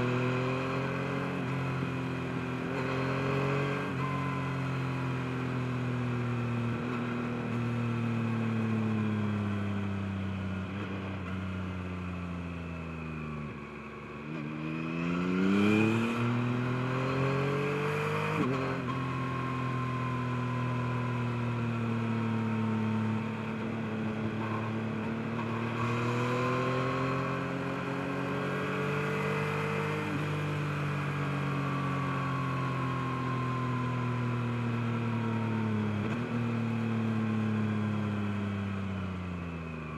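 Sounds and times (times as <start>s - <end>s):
motorcycle engine riding: 0.0s - 39.9s.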